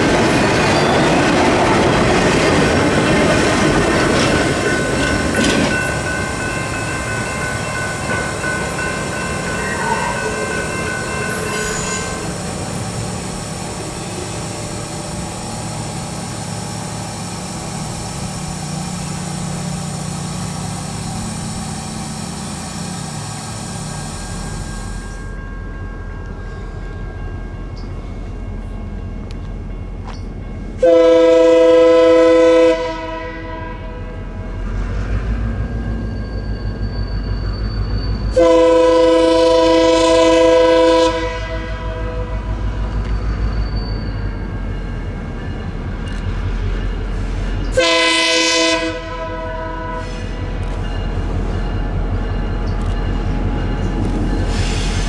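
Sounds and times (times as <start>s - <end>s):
train wheels on rails: 0.0s - 55.0s
high metallic ringing: 4.3s - 12.8s, 23.6s - 30.8s
locomotive air horn chord: 9.6s - 12.4s, 30.8s - 34.2s, 38.3s - 42.7s, 47.7s - 50.5s.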